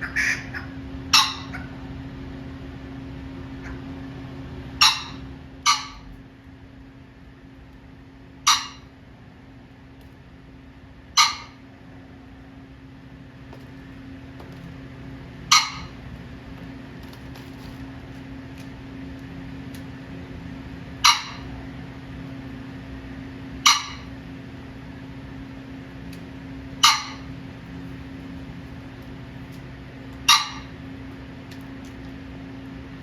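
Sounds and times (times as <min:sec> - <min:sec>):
pheasant squawking calls: 0:00.0 - 0:01.8, 0:04.8 - 0:06.1, 0:08.4 - 0:08.9, 0:11.2 - 0:11.6, 0:15.5 - 0:16.0, 0:21.0 - 0:21.7, 0:23.6 - 0:24.2, 0:26.8 - 0:27.4, 0:30.2 - 0:30.8.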